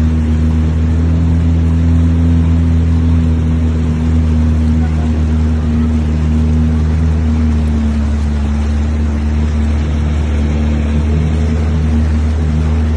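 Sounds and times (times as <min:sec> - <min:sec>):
jet ski engine drone: 0:00.0 - 0:12.9
rushing water: 0:00.0 - 0:12.9.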